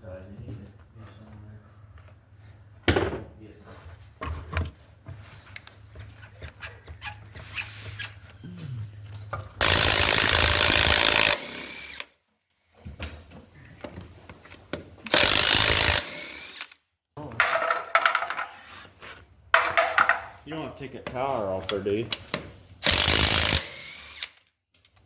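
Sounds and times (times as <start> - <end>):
handheld power tool running: 9.6 - 12.1, 15.1 - 16.8, 22.8 - 24.4.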